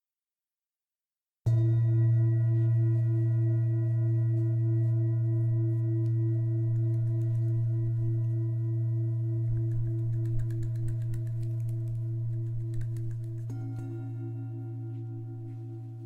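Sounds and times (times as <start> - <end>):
singing bowl ringing: 1.5 - 10.2, 13.5 - 16.0.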